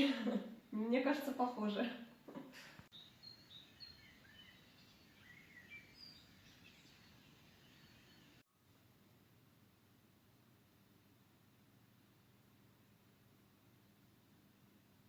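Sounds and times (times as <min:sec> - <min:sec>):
faint birds chirping: 0:00.0 - 0:08.5
low background hiss: 0:00.0 - 0:15.0.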